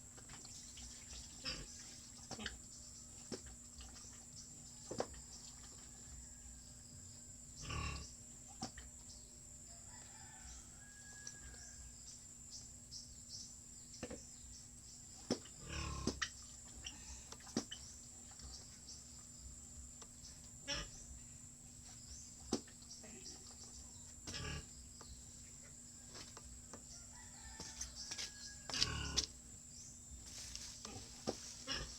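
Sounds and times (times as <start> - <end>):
pigs grunting: 1.4 - 2.6, 7.6 - 8.2, 15.4 - 17.2, 20.6 - 21.0, 24.3 - 24.7, 28.8 - 29.3, 30.9 - 31.9.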